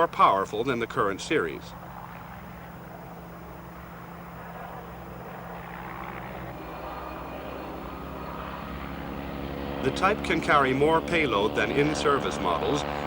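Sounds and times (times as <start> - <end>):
helicopter engine and rotor: 0.0 - 13.0.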